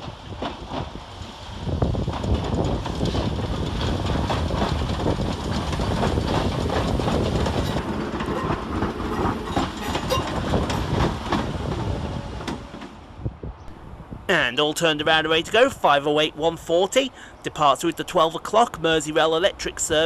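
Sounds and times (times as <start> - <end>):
wheels clicking over rail joints: 0.0 - 13.0
train rumble: 0.0 - 20.0.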